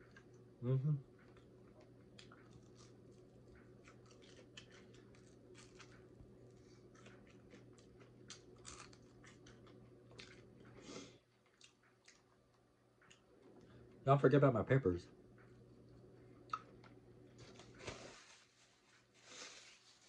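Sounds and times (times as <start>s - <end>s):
chewing crispy chicken: 1.1s - 14.0s.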